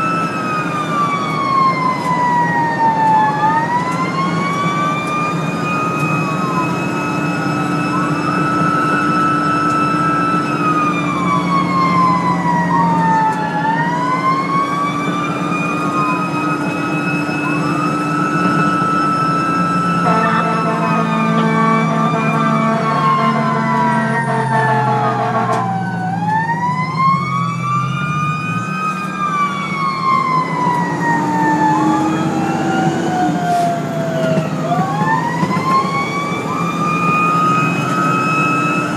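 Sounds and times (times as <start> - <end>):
fire engine siren wailing: 0.0 - 38.9
second siren: 0.0 - 38.9
truck engine drone: 0.0 - 38.9
air horn: 20.0 - 25.7.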